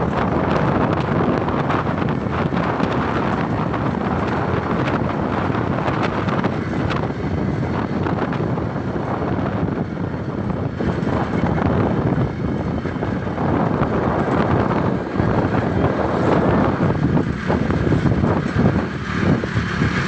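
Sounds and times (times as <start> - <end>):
motorcycle engine running: 0.0 - 20.0
road noise: 0.0 - 20.0
wind noise on microphone: 0.0 - 20.0.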